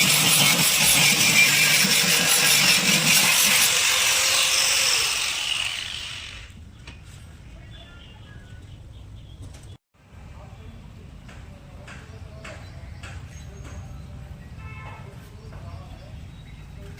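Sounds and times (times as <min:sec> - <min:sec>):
hand-held power tool running: 0:00.0 - 0:06.6.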